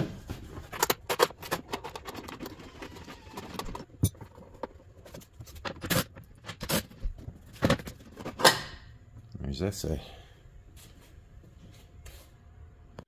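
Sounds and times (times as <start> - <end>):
plastic and metal parts bumping: 0.0 - 8.8.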